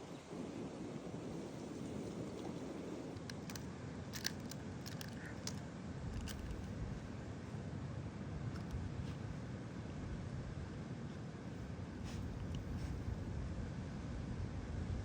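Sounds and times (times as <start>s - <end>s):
low wind: 0.0s - 15.0s.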